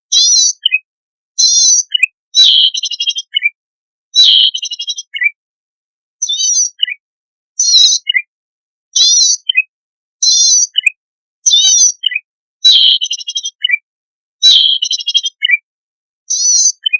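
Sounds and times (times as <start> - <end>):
songbird singing: 0.1 - 3.5, 4.2 - 5.4, 6.2 - 7.0, 7.6 - 8.3, 9.0 - 15.6, 16.3 - 16.9.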